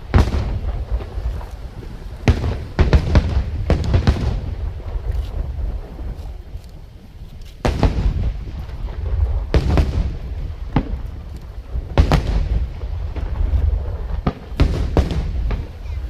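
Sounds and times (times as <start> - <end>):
fireworks booming: 0.0 - 6.6, 7.6 - 16.0
low rumble: 0.0 - 16.0
small fireworks pops: 0.0 - 16.0.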